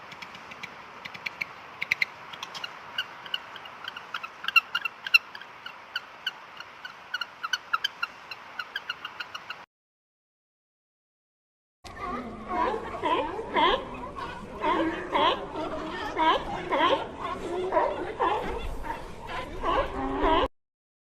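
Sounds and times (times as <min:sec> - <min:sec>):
animal chirping: 0:00.5 - 0:09.6.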